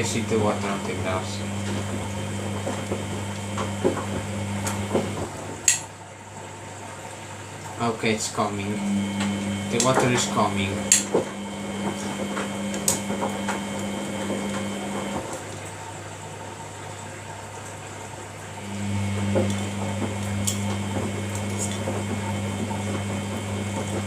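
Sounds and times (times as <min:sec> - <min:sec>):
water inlet valve humming: 0:00.0 - 0:05.9, 0:08.4 - 0:15.6, 0:18.6 - 0:24.0
water running in: 0:00.0 - 0:24.0.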